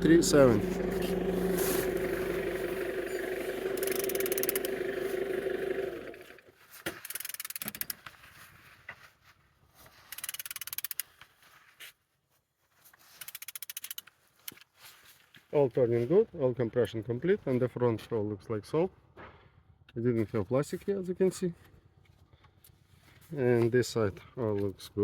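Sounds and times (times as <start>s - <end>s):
power tool motor whine: 0.0s - 6.5s
rapid ratchet-like clicking: 2.3s - 6.3s, 7.0s - 8.0s, 10.1s - 11.1s, 13.2s - 14.1s.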